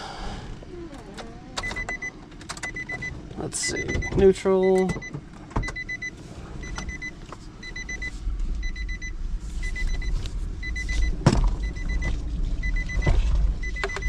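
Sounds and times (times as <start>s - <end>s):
car warning chime beeps: 1.6s - 14.0s
low rumble: 6.2s - 14.0s.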